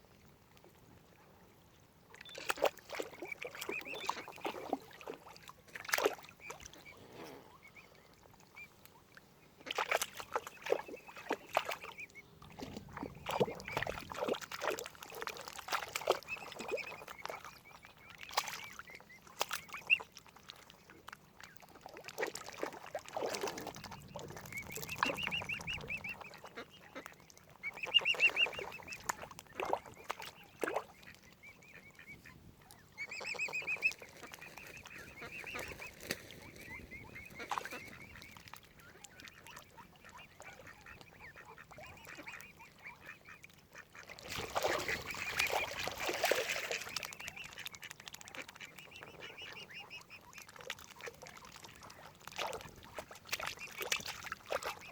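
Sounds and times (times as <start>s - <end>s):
waterfowl calling: 9.6s - 18.9s, 23.1s - 32.3s, 33.0s - 51.8s.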